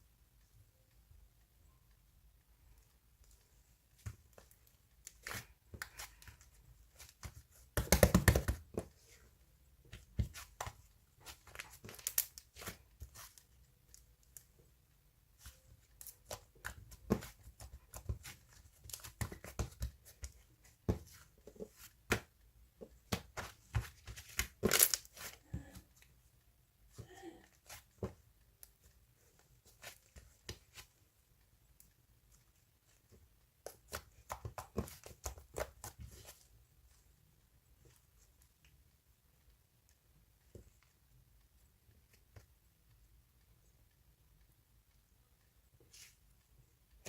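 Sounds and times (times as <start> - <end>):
rustling and tearing: 11.2 - 14.4, 23.4 - 25.8.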